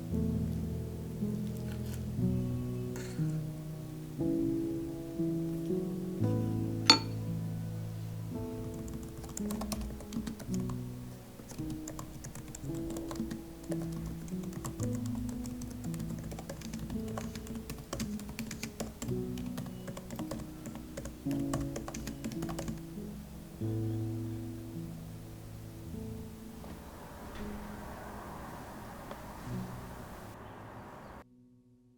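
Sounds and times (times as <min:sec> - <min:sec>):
soft background music: 0:00.0 - 0:30.9
keyboard typing: 0:08.6 - 0:10.8, 0:11.4 - 0:22.9.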